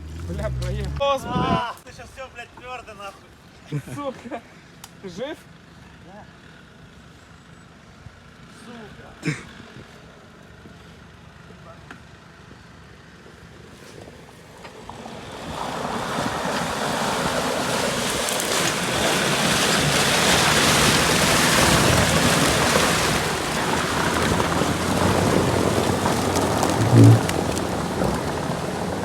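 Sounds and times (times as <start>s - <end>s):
wheels splashing water: 0.0s - 1.2s, 12.8s - 29.0s
off-road vehicle churning mud: 0.0s - 1.6s, 8.4s - 29.0s.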